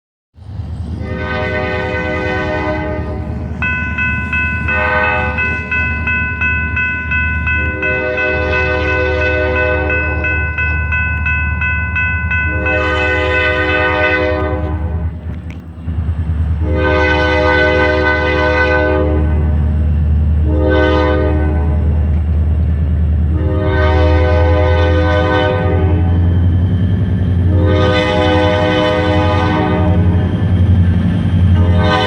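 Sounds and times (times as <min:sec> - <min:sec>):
locomotive engines rumbling: 0:00.4 - 0:32.0
locomotive air horn: 0:01.0 - 0:03.8, 0:04.4 - 0:06.2, 0:07.5 - 0:10.4, 0:12.4 - 0:15.2, 0:16.6 - 0:19.6, 0:20.4 - 0:22.1, 0:23.3 - 0:26.2, 0:27.4 - 0:30.3, 0:31.5 - 0:32.0
locomotive bell ringing: 0:01.1 - 0:15.2.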